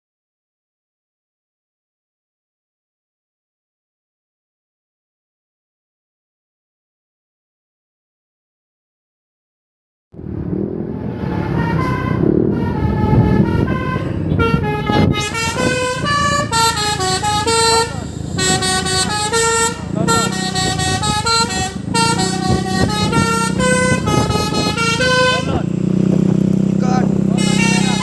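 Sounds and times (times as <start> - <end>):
traffic: 10.2 - 28.0
truck engine rumble: 10.2 - 28.0
musical air horn playing tune: 11.2 - 25.7, 27.3 - 28.0.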